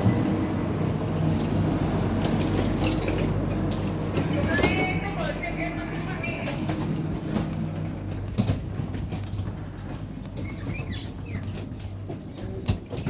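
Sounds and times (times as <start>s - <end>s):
train carriage hum: 0.0s - 13.0s
small clicks and knocks: 6.8s - 13.0s
faint short squeaks: 10.4s - 11.6s.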